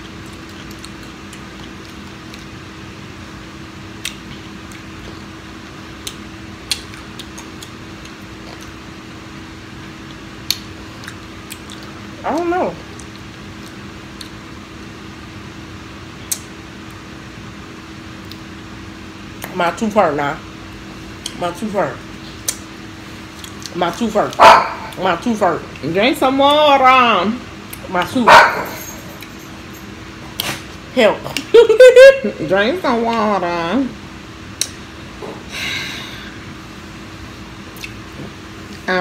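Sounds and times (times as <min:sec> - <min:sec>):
people chewing: 0:00.0 - 0:02.6, 0:06.0 - 0:08.9, 0:09.9 - 0:14.4, 0:22.3 - 0:25.0, 0:37.7 - 0:38.1
steady low hum: 0:00.0 - 0:39.0.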